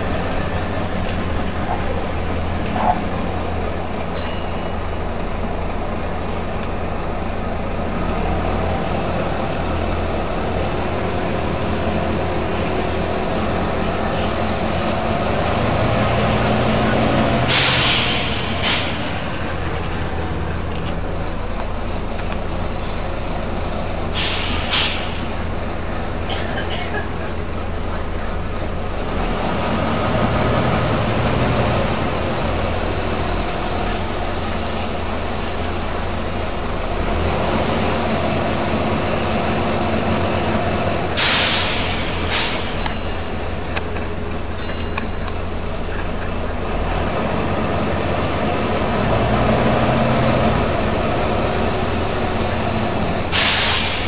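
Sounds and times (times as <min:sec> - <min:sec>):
bus diesel engine running: 0:00.0 - 0:54.0
short sharp air hisses: 0:17.5 - 0:19.1, 0:24.2 - 0:25.3, 0:41.2 - 0:42.8, 0:53.3 - 0:54.0.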